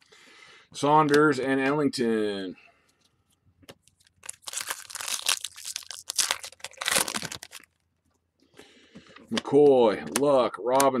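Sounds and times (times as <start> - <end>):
foil wrapper crinkling: 3.8 - 7.8.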